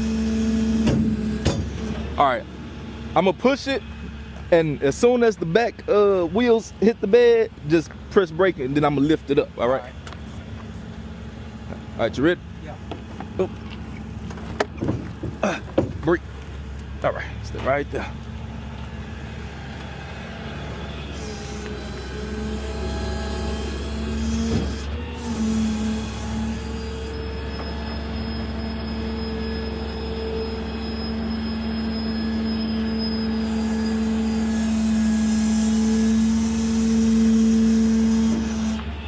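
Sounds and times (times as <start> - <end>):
truck engine and hydraulics humming: 0.0 - 39.0
faint high whine: 25.1 - 39.0.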